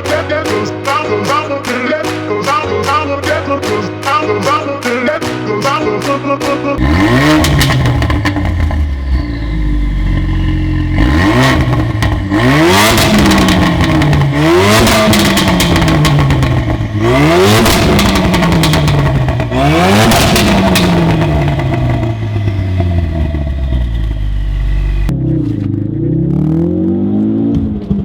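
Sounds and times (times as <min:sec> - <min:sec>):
car engine revving: 0:06.8 - 0:28.0
exhaust crackling: 0:06.8 - 0:28.0.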